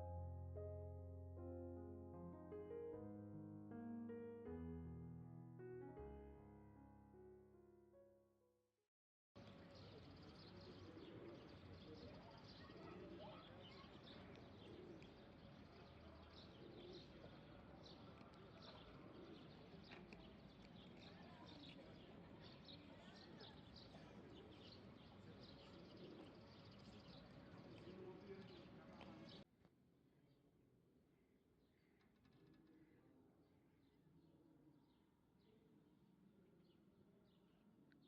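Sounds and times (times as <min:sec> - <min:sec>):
distant murmur of voices: 0:09.4 - 0:29.4
faint outdoor hum: 0:09.4 - 0:29.4
small birds chirping: 0:09.4 - 0:29.4.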